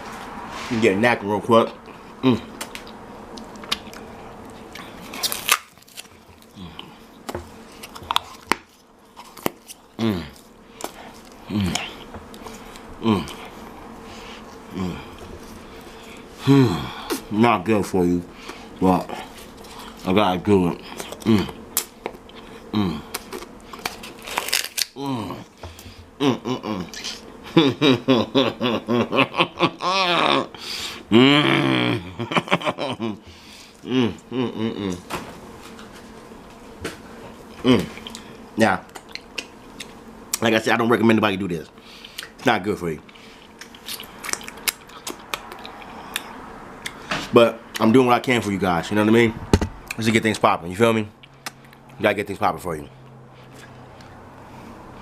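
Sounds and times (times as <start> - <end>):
styrofoam being chewed: 2.6 - 13.6, 18.5 - 20.2, 20.8 - 26.0, 43.0 - 46.3
man laughing: 16.4 - 17.0, 26.2 - 35.1.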